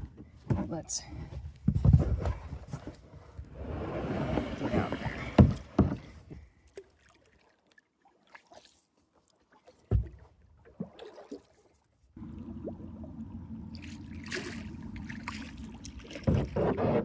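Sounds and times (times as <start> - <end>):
hollow knocks from boat: 3.6 - 6.5, 9.9 - 10.3, 15.3 - 17.0.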